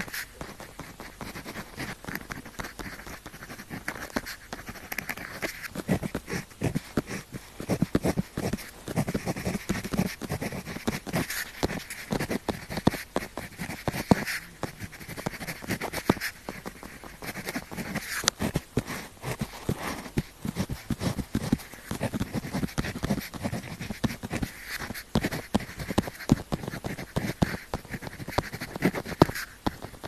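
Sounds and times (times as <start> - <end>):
pen scratching on paper: 0.0 - 30.0.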